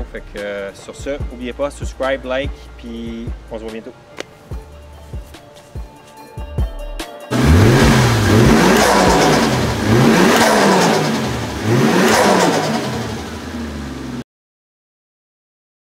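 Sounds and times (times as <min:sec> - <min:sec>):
car engine revving: 0:07.3 - 0:14.2.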